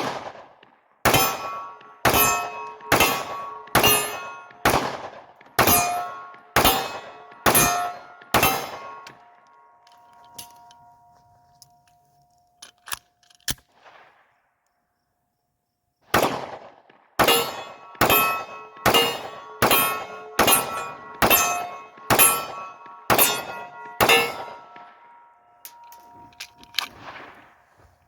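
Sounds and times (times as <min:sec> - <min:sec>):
pistol shots: 0:00.0 - 0:09.4, 0:16.1 - 0:27.6
steel target ringing: 0:01.1 - 0:04.8, 0:05.6 - 0:11.2, 0:17.2 - 0:26.5.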